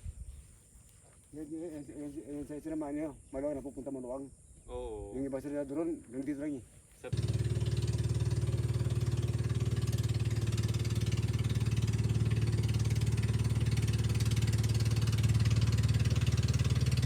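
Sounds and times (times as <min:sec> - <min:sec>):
engine idling: 0:07.1 - 0:17.0.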